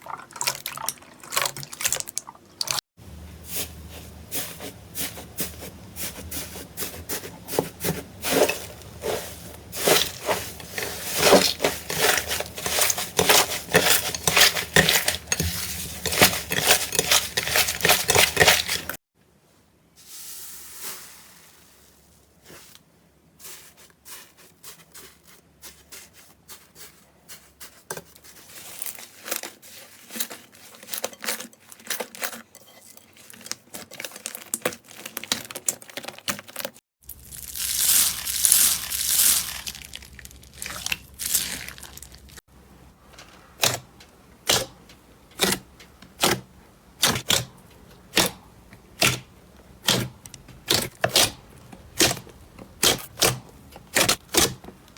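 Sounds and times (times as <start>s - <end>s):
slime crackling and popping: 37.1s - 42.4s.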